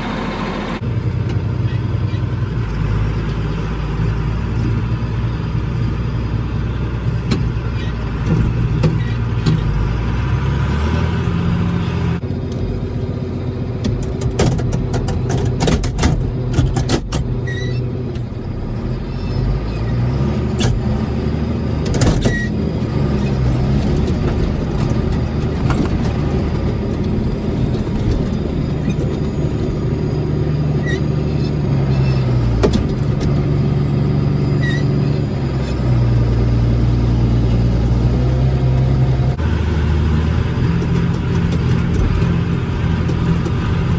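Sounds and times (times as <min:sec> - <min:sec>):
tractor engine running: 0:00.0 - 0:43.9
clanks and rattles: 0:07.2 - 0:10.0, 0:13.8 - 0:36.6, 0:40.2 - 0:43.9.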